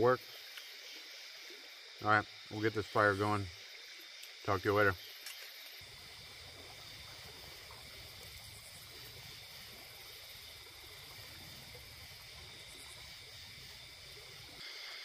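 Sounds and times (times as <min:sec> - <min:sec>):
river water flowing: 0:05.1 - 0:15.0.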